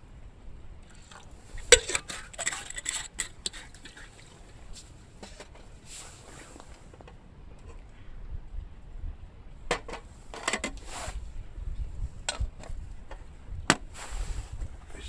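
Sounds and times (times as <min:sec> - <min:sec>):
wind rumble on microphone: 0:00.0 - 0:15.0
metal pots and utensils clinking: 0:01.6 - 0:04.2.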